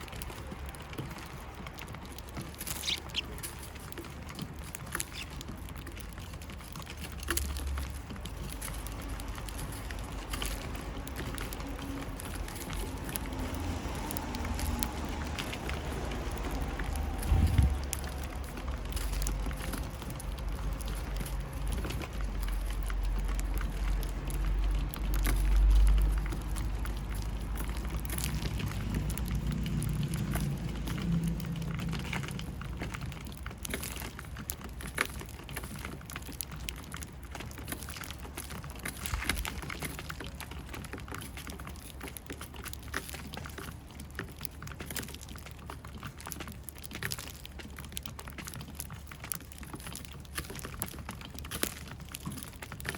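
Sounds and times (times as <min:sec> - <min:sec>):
light irregular ticks and taps: 0:00.0 - 0:52.9
low rumble: 0:12.9 - 0:20.6.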